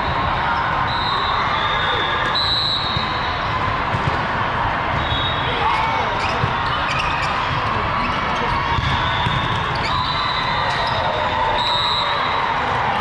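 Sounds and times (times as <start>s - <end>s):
crowd noise: 0.0s - 13.0s
balls bouncing and being struck: 2.2s - 5.1s, 6.2s - 10.0s.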